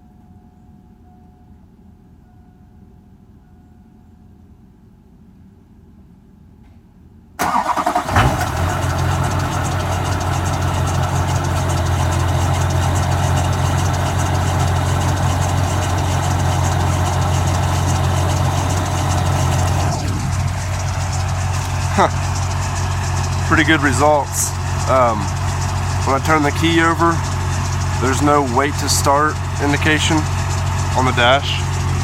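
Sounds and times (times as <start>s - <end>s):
diesel engine starting and idling: 7.4s - 32.0s.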